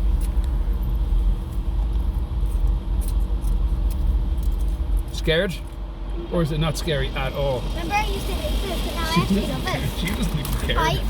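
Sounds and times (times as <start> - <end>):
car wash machinery rumbling: 5.0 - 11.0.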